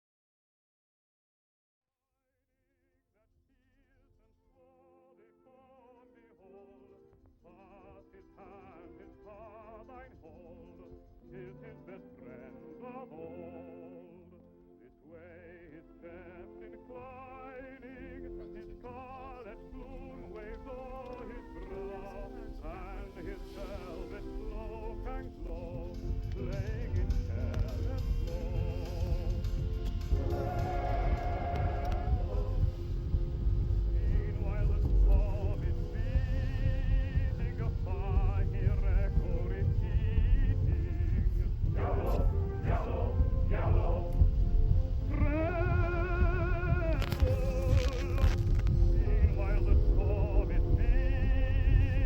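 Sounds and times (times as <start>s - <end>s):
opera singer with vibrato: 5.2s - 52.0s.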